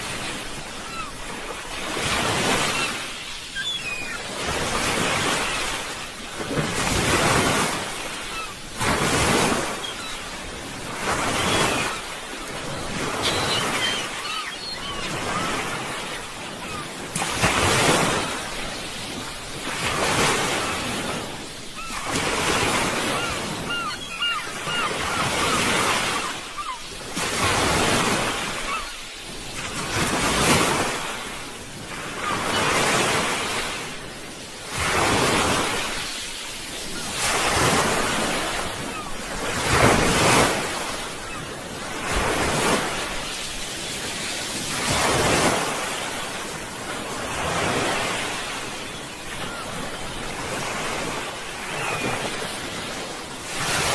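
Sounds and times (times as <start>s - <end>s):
sea waves breaking: 0.0s - 53.9s.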